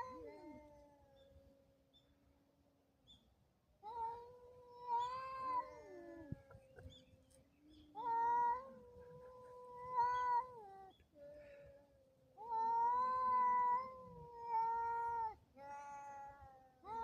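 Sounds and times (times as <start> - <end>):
cats yowling: 0.0 - 1.0, 3.8 - 6.5, 7.9 - 10.9, 12.4 - 17.0.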